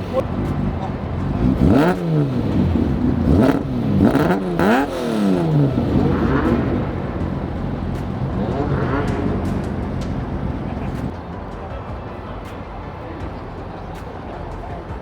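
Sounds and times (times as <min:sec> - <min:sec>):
car engine revving in throttle blips: 0:00.0 - 0:11.4.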